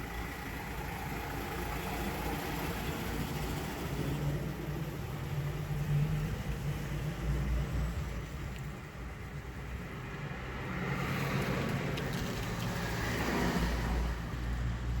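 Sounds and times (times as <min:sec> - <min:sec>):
truck engine running: 0:00.0 - 0:04.6
road noise: 0:00.0 - 0:15.0.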